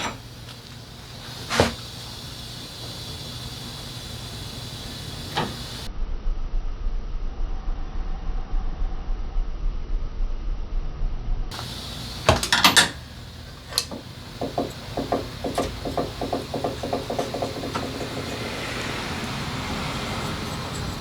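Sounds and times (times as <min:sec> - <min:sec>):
sharp metal knocks: 0:11.5 - 0:21.0.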